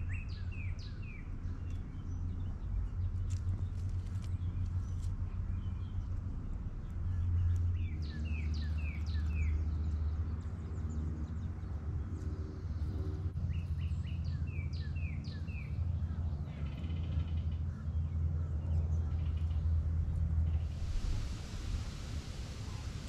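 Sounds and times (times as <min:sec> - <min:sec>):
songbird singing: 0:00.0 - 0:23.0
low rumble: 0:15.5 - 0:23.0.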